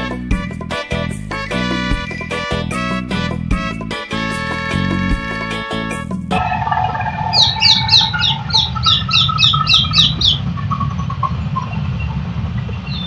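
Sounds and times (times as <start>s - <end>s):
bird calling high notes: 0.0s - 10.5s
steady low rumble: 6.1s - 13.0s.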